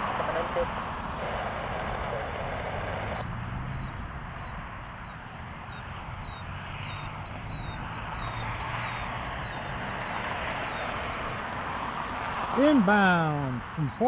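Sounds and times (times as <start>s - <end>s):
wind-like rush: 0.0s - 5.4s.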